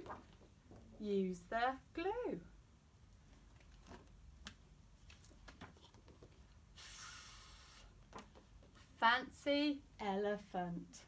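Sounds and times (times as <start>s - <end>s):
woman saying fff hiss: 6.8s - 7.9s.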